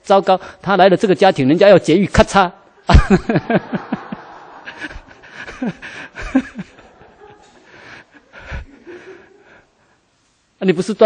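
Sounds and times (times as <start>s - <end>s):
group of people laughing: 2.8s - 9.7s.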